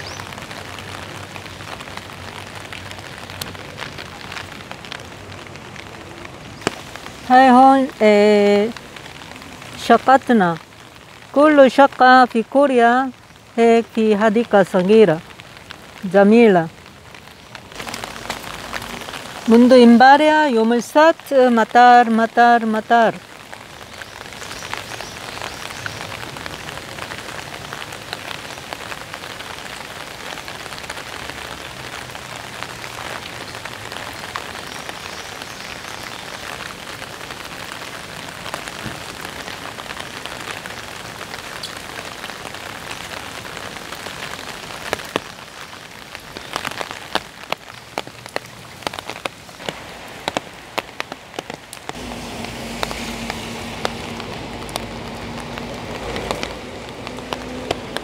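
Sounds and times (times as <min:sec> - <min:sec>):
road traffic hum: 0:00.0 - 0:11.4, 0:46.0 - 0:58.0
rain pattering on leaves: 0:00.0 - 0:58.0.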